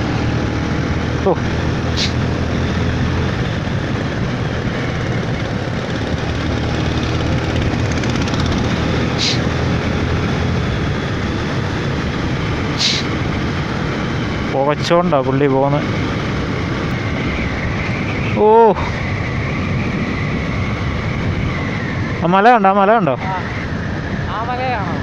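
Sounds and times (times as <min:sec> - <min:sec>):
road and wind rush: 0:00.0 - 0:25.0
vehicle engine drone: 0:00.0 - 0:25.0.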